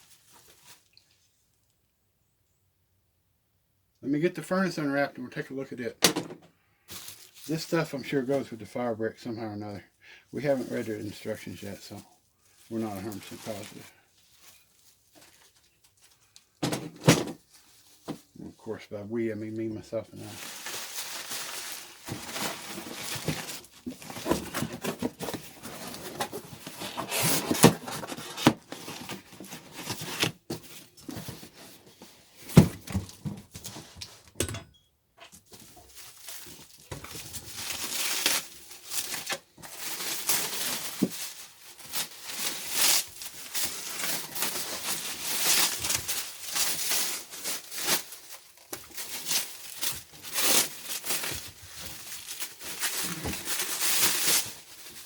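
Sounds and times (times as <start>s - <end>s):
packing material crinkling and tearing: 6.9s - 8.4s, 10.4s - 16.6s, 20.0s - 34.0s, 35.4s - 55.0s.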